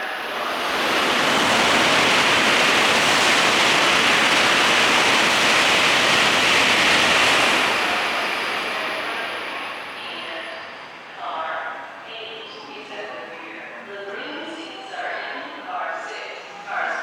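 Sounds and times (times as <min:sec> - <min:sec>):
train rushing past: 0:00.0 - 0:11.4.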